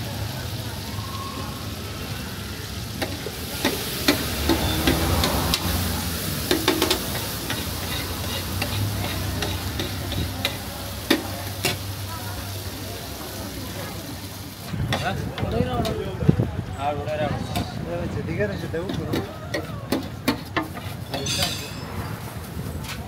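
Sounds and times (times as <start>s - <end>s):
food sizzling on a griddle: 0.0s - 16.2s
spatula clacking on griddle: 3.0s - 5.8s, 6.4s - 11.9s, 18.9s - 21.7s
metal spatula scraping: 7.5s - 10.6s, 20.3s - 21.9s.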